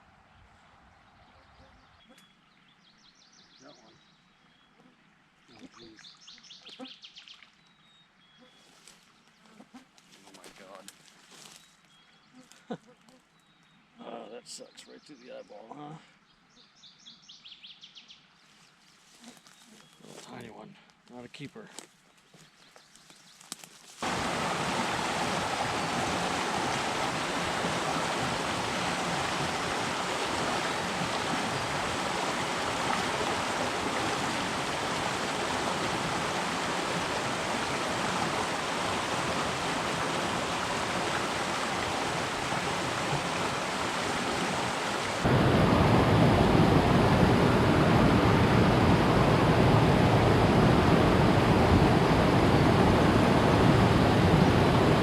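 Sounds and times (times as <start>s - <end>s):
stream water rushing: 24.0s - 55.0s.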